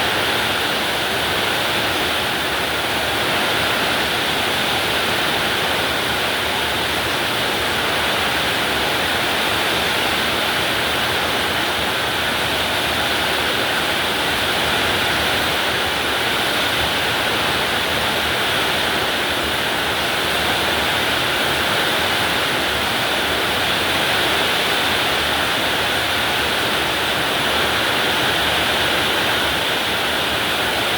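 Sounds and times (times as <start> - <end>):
heavy rain pouring: 0.0 - 30.9.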